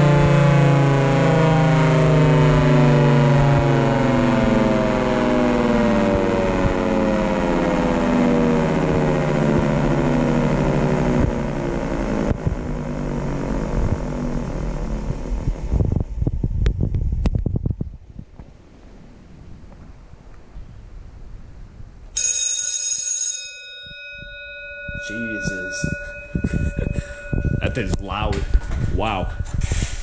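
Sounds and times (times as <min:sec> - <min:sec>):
warning siren winding down: 0:00.0 - 0:17.4, 0:22.2 - 0:30.0
wind buffeting microphone: 0:08.7 - 0:22.0, 0:23.8 - 0:30.0.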